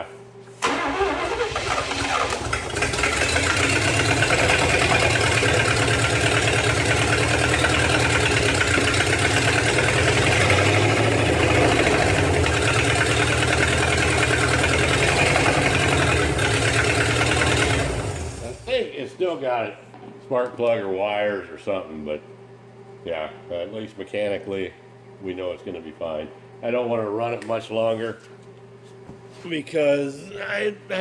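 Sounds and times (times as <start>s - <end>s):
car engine running: 1.4s - 18.7s.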